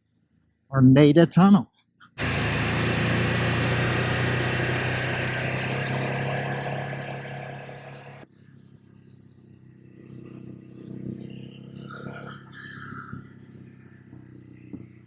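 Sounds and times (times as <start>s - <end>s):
motorcycle engine running: 2.2s - 8.2s.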